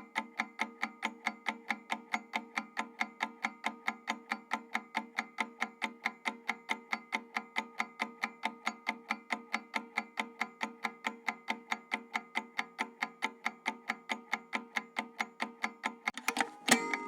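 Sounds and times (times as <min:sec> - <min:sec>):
steady held tone: 0:16.2 - 0:17.0.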